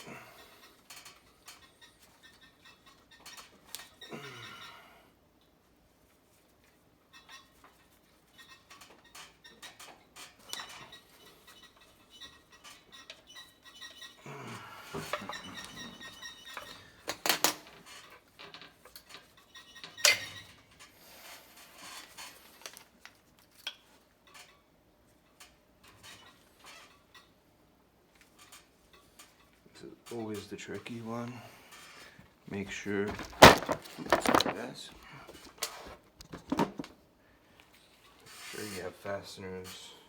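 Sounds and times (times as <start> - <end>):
metal parts clinking and scraping: 15.0 - 20.5, 32.8 - 34.9.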